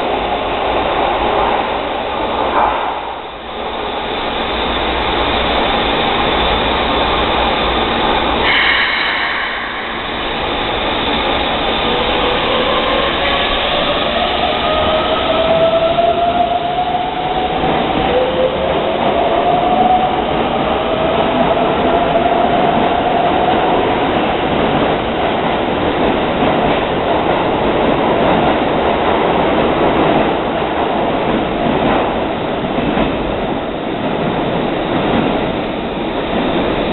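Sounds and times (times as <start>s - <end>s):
wheels rumbling on rail: 0.0s - 36.9s.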